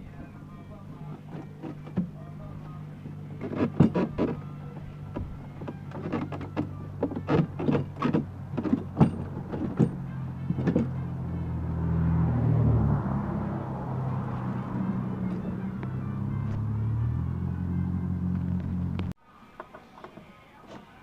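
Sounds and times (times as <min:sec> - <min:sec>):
hardware knocks and clatter: 0:03.4 - 0:04.4, 0:05.1 - 0:11.0.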